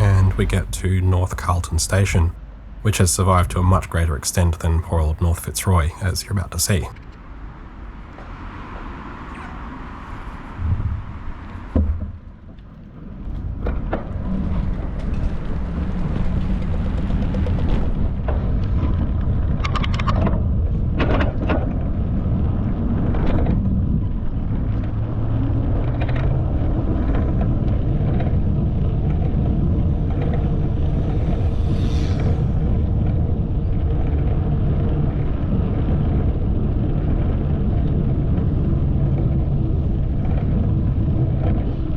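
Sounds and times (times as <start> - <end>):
wind rumble: 14.0 - 41.9.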